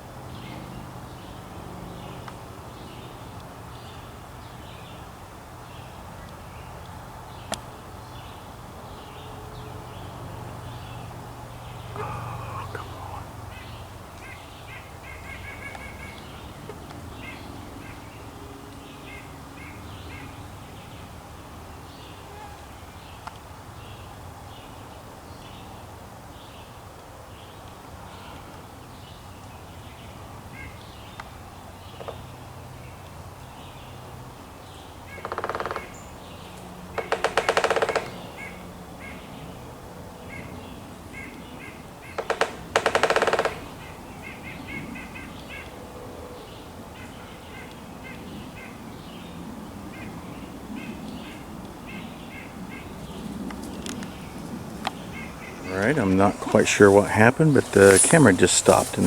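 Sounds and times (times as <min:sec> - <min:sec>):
small birds chirping: 0:00.3 - 0:22.3, 0:40.2 - 0:59.0
woodpecker drumming: 0:11.8 - 0:14.3, 0:35.2 - 0:36.1, 0:36.9 - 0:38.6, 0:42.1 - 0:44.0, 0:52.8 - 0:59.0.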